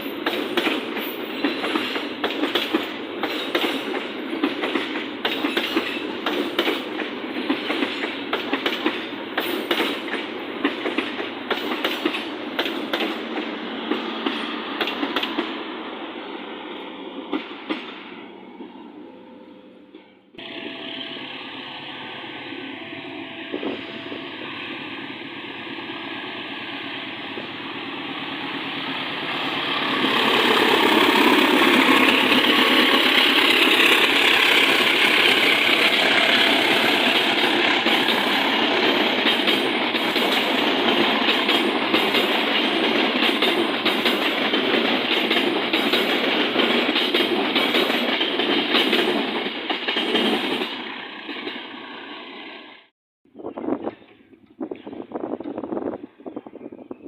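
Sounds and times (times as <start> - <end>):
train wheels clattering on rails: 0.0 - 15.7, 17.2 - 18.2, 28.3 - 51.8.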